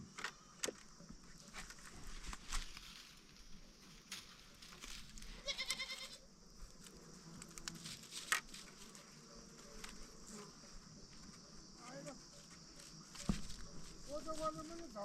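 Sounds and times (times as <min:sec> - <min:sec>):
animal bleat: 0:05.3 - 0:06.2.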